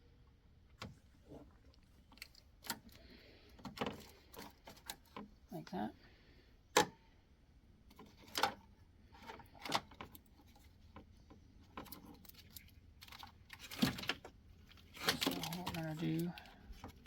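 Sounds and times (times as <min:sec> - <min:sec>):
plastic clips clicking and rattling: 0:11.7 - 0:17.0.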